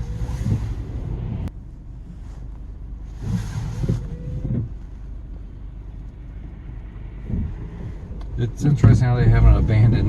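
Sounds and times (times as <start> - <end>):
car engine and tyres rumbling: 0.0 - 10.0.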